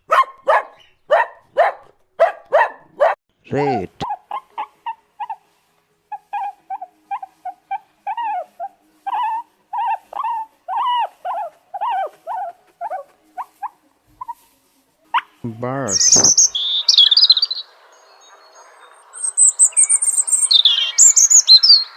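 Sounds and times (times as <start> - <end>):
rat squeaking: 9.1 - 14.4, 15.9 - 17.6.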